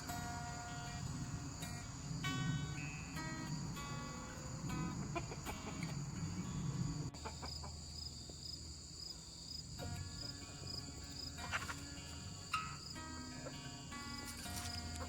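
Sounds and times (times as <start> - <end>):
insects chirring: 0.0 - 15.0
chickens clucking: 2.9 - 8.6, 10.0 - 15.0.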